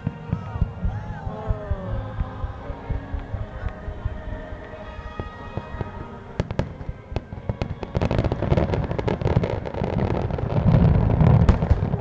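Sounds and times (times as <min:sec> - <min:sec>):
fireworks crackling: 0:00.0 - 0:12.0
fireworks bangs: 0:03.9 - 0:12.0.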